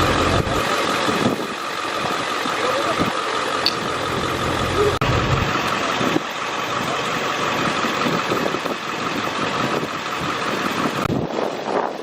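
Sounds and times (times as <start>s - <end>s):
engine idling: 0.0s - 11.3s
high whine: 3.6s - 6.8s.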